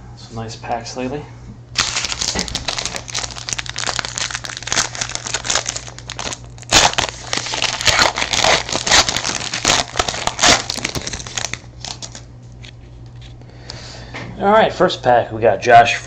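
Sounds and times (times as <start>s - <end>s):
foil wrappers crinkling and tearing: 1.8s - 13.3s.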